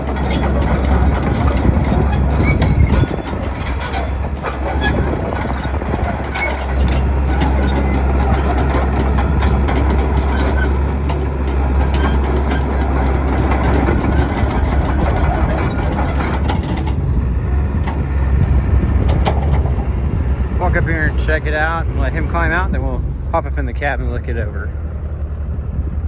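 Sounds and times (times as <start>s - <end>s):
metallic clanks and knocks: 0.0s - 18.0s, 18.8s - 21.4s
diesel engine drone: 0.0s - 26.0s.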